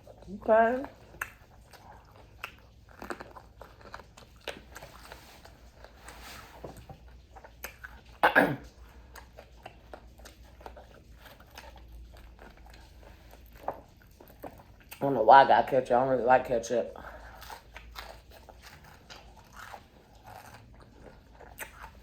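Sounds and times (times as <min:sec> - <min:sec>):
person chewing crispy food: 0:00.0 - 0:15.0, 0:16.9 - 0:22.0.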